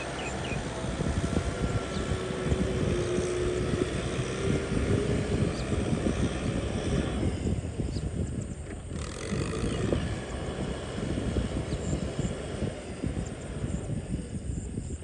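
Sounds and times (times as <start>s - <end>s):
tractor engine running under load: 0.0s - 15.0s.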